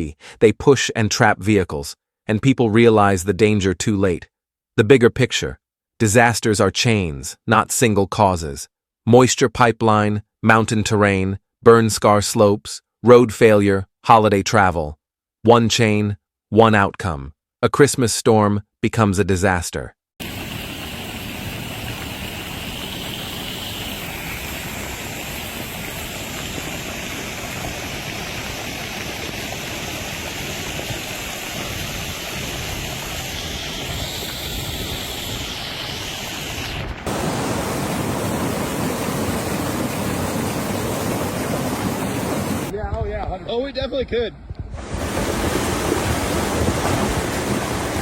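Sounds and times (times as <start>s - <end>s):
floodwater rushing: 20.2s - 42.7s, 44.8s - 48.0s
rain: 20.2s - 42.7s, 45.0s - 48.0s.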